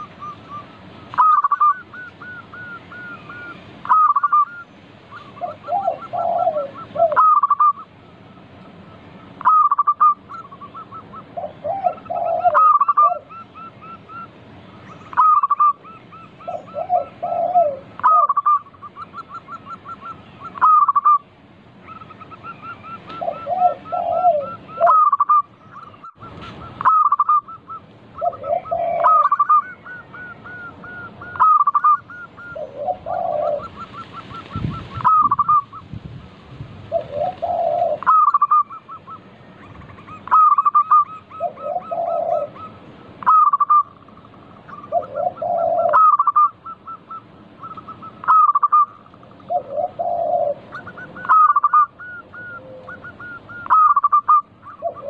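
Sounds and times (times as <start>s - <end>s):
doves cooing: 0.0s - 36.0s, 36.8s - 55.0s.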